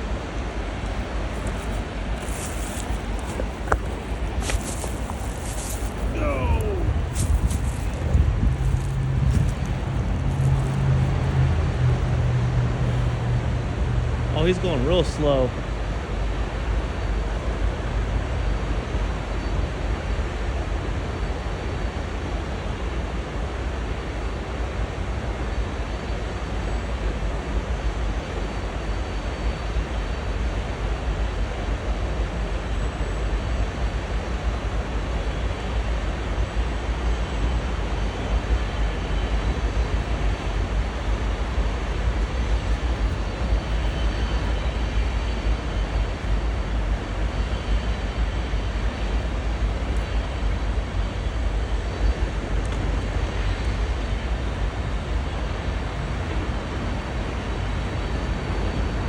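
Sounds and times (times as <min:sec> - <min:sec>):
freight train rumbling past: 0:07.9 - 0:14.4.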